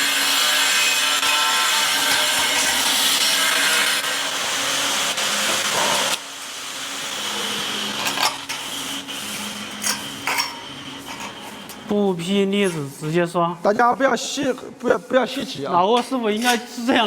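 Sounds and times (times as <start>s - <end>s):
power tool running: 0.0s - 11.8s.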